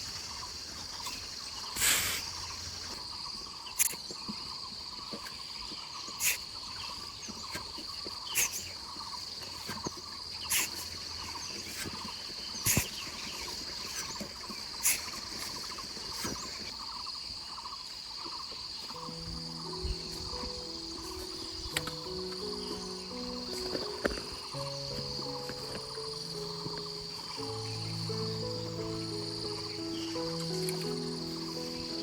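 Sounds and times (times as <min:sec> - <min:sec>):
insects trilling: 0:00.0 - 0:32.0
music: 0:19.0 - 0:32.0.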